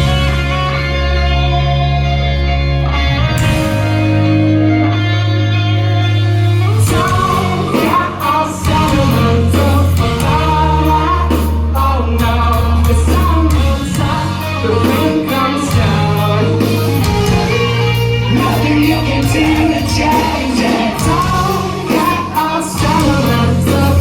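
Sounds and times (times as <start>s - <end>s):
bass notes: 0.0s - 24.0s
drums: 0.0s - 24.0s
electric guitar: 0.0s - 24.0s
person singing: 6.4s - 24.0s.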